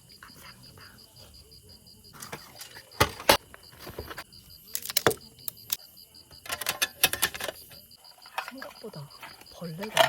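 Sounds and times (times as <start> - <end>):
night insects chirping: 0.0 - 10.0
small objects clicking and clattering: 4.7 - 5.8.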